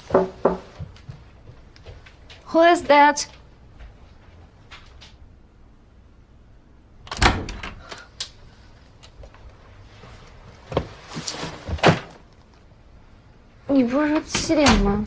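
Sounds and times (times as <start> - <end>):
door thudding shut: 7.1 - 7.8.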